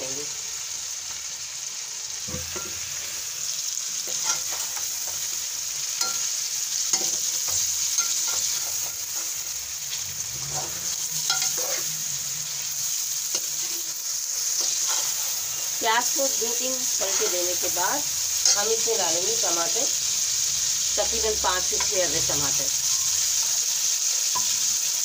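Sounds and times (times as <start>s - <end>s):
food sizzling in hot oil: 0.0s - 25.0s
metal spoon scraping pan: 4.1s - 5.4s, 6.0s - 15.7s, 16.8s - 17.8s.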